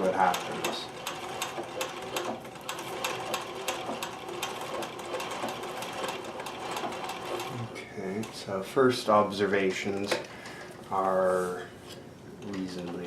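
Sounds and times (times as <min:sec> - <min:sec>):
sewing machine stitching: 0:00.0 - 0:08.5.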